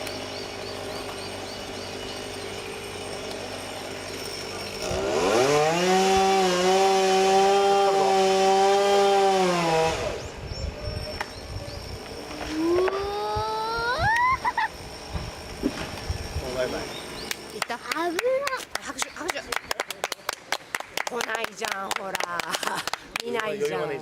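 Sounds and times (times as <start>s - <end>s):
chainsaw idling and revving: 0.0s - 10.4s, 14.5s - 19.3s.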